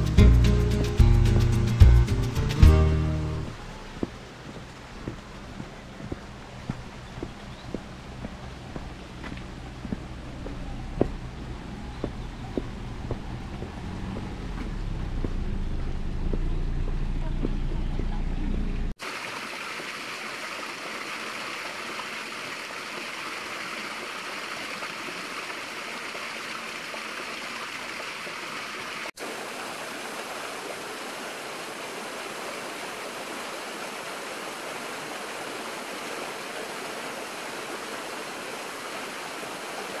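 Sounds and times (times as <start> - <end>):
stream rushing over rocks: 2.6 - 12.0, 19.0 - 40.0.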